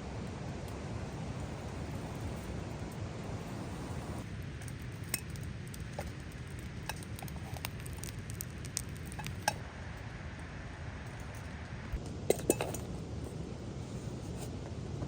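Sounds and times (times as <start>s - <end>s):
steady fire hiss: 0.0s - 12.2s
campfire popping and crackling: 0.2s - 9.6s.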